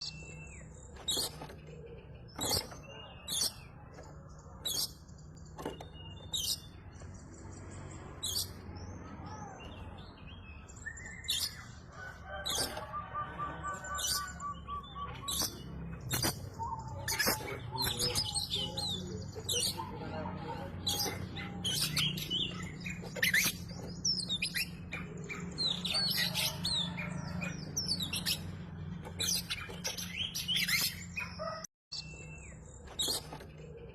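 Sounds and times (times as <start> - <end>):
bird singing chirps and whistles: 9.4 - 11.7, 12.6 - 20.0.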